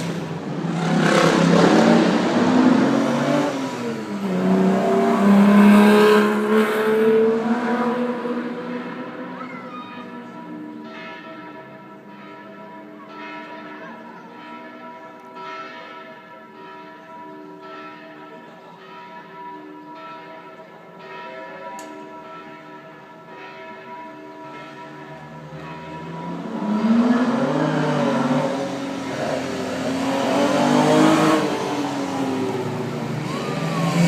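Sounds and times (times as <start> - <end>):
church bells ringing: 0.0 - 34.0.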